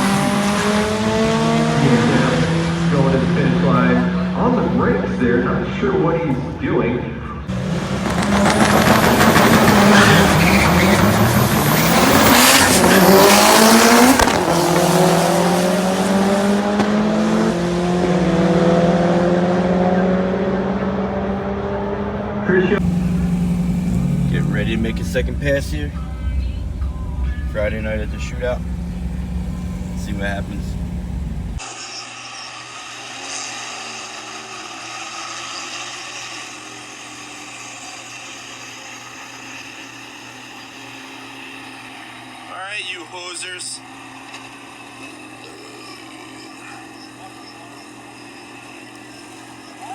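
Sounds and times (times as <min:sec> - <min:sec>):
race car engine revving: 0:00.0 - 0:06.0, 0:07.5 - 0:31.6
tyre squeal: 0:08.2 - 0:14.8, 0:45.0 - 0:49.9
low hum: 0:22.8 - 0:31.6.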